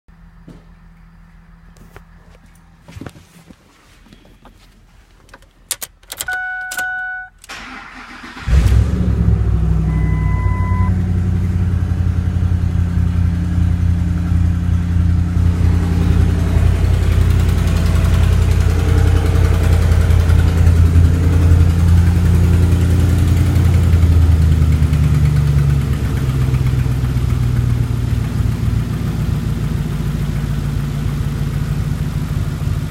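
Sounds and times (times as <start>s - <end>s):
car engine starting and idling: 4.2s - 32.9s
electronic beep: 6.2s - 7.4s, 9.9s - 11.0s
short electronic chimes: 6.2s - 7.4s.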